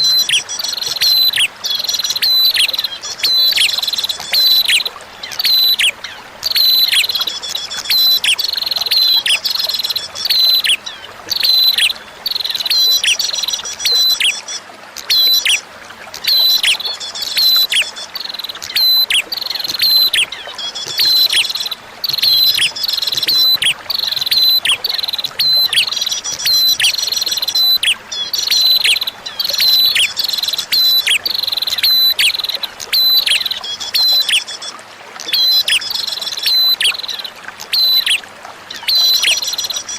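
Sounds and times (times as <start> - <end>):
bird chirping: 0.0 - 15.6, 16.2 - 34.7, 35.3 - 39.9
faint flowing water: 0.0 - 39.9.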